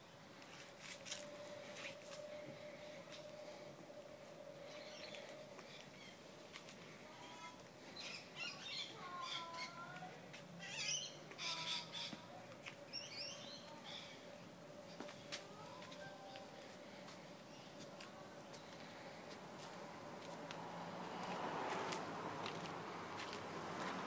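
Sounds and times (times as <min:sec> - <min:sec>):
faint steady hum: 0:00.0 - 0:21.3
birds calling and chirping: 0:04.4 - 0:16.7.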